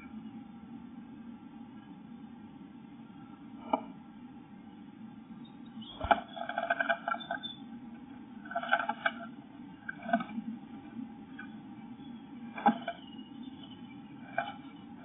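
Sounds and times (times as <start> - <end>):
bird scratching and tapping: 6.0 - 7.4, 8.5 - 9.3, 12.6 - 13.0, 14.3 - 14.7.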